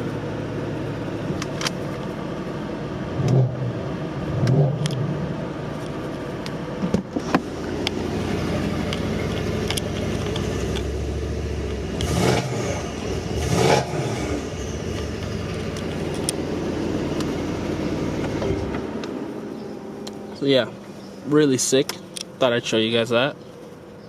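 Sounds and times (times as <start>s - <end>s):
car engine idling: 0.0s - 24.0s
engine revving: 3.1s - 5.4s, 7.2s - 23.4s.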